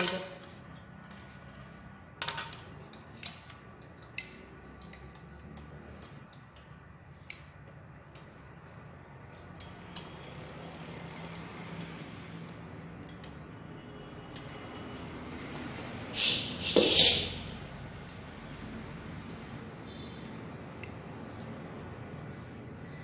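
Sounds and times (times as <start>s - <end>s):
metal tools clinking: 13.0s - 13.5s, 16.5s - 17.5s.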